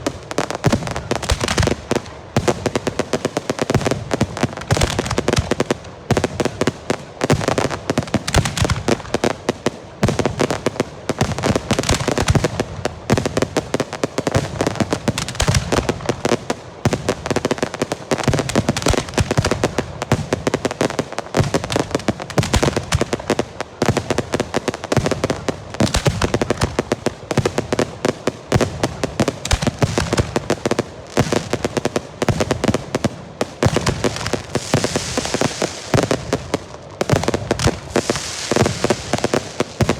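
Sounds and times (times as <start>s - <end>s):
firework rockets banging: 21.4s - 39.9s.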